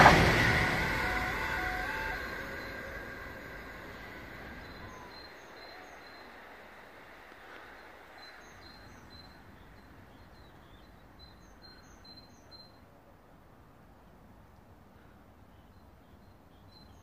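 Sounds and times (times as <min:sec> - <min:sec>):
electric train rumble: 0:00.0 - 0:10.6.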